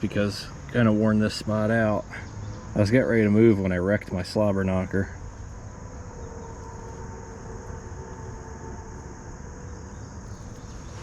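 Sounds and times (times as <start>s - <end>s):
high insect buzz: 5.2s - 11.0s
low rumble: 5.2s - 11.0s
motor hum: 5.4s - 11.0s.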